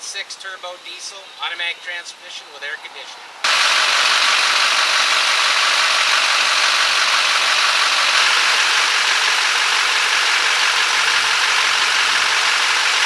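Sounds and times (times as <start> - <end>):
diesel truck engine idling: 3.4 - 13.0.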